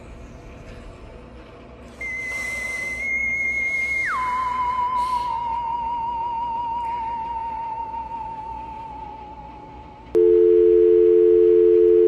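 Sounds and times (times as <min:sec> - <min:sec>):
telephone dial tone: 0:10.2 - 0:12.0.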